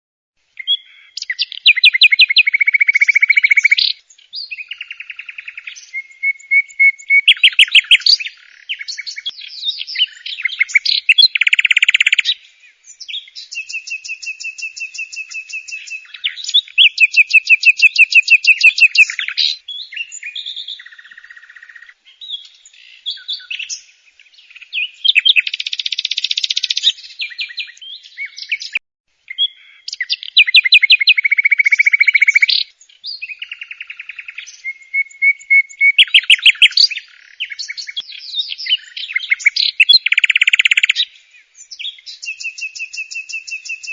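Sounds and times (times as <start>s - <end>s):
bird trilling and chirping: 0.6s - 43.9s.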